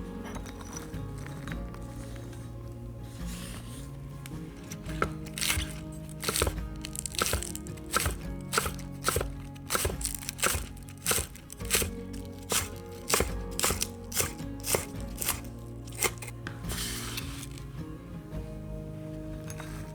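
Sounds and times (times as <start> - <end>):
soft background music: 0.0 - 19.9
knife chopping on cutting board: 5.0 - 17.5.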